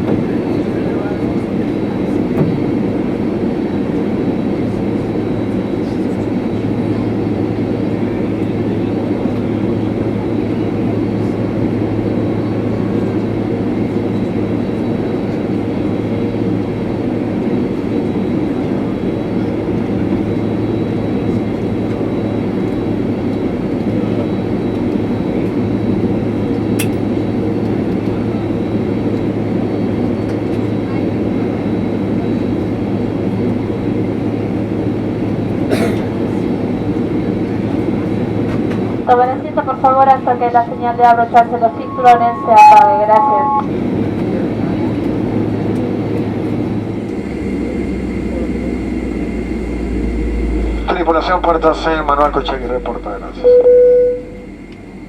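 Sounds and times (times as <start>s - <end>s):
jet engines humming: 0.0s - 55.0s
cabin air rushing: 46.7s - 55.0s.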